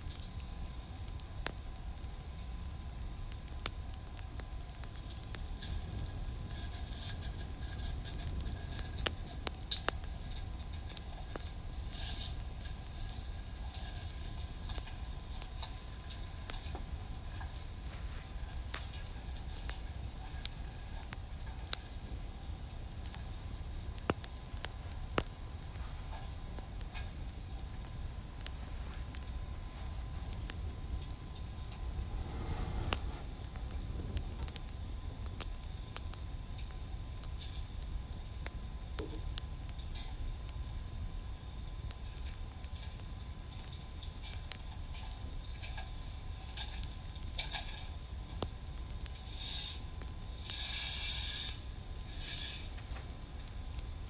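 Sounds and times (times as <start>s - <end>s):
wood fire crackling: 0.0s - 54.0s
low rumble: 31.6s - 35.1s.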